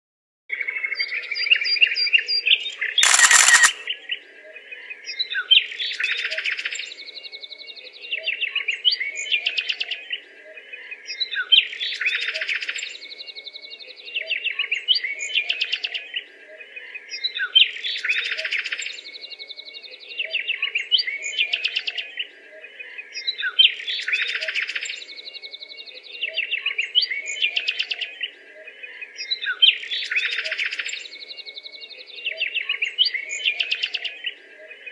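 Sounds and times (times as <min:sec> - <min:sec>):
birds chirping and twittering: 0:00.5 - 0:34.9
short loud noise burst: 0:03.0 - 0:03.9.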